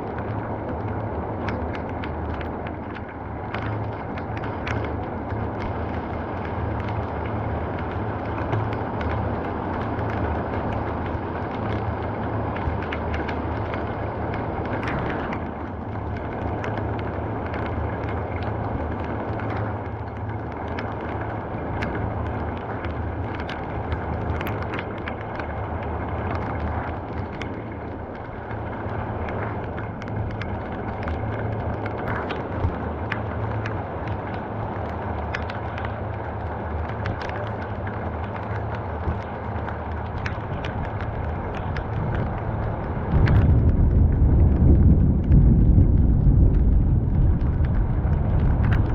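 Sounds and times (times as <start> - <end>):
heavy rain: 0.0 - 48.9
raindrops ticking on a surface: 0.0 - 48.9
low rumble: 19.7 - 48.9.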